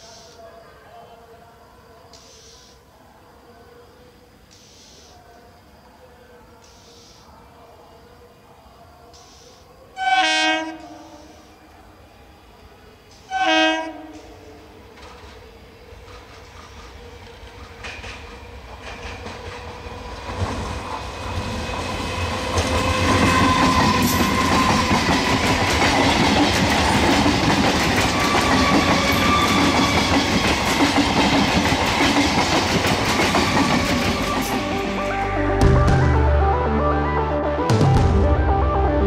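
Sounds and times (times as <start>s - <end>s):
electric train passing at speed: 10.6s - 35.6s.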